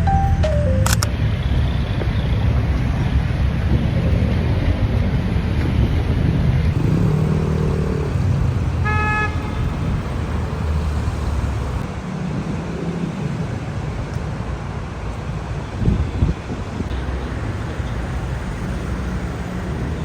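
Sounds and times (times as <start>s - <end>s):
road traffic: 0.0s - 20.0s
car horn toot: 8.8s - 10.6s.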